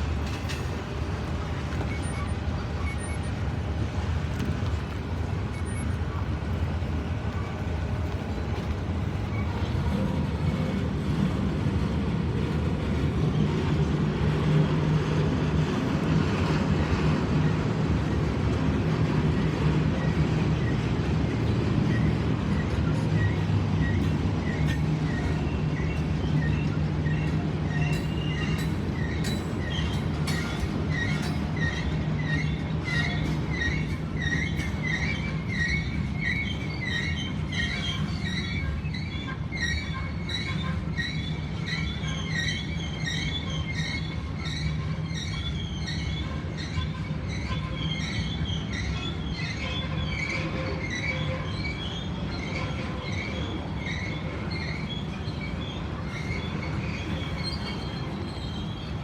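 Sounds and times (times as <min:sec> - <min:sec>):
train rumbling: 0:00.0 - 0:59.0
wheel squeal: 0:01.6 - 0:03.6, 0:05.4 - 0:07.6, 0:16.5 - 0:59.0.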